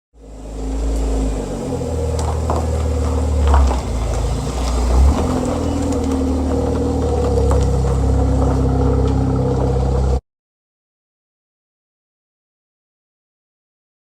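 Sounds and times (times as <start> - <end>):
car engine idling: 0.2 - 10.2.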